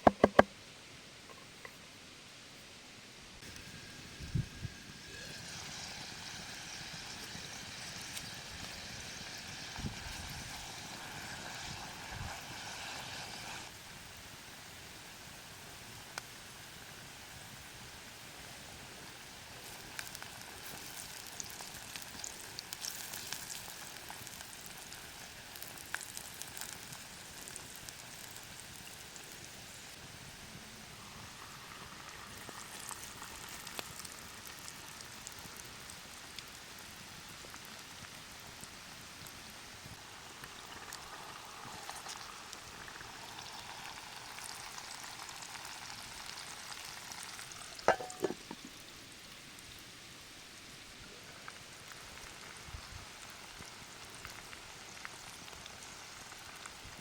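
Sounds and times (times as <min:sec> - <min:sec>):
food sizzling in a pot: 0:03.4 - 0:57.0
fire pops and crackles: 0:19.0 - 0:30.1, 0:31.2 - 0:48.8.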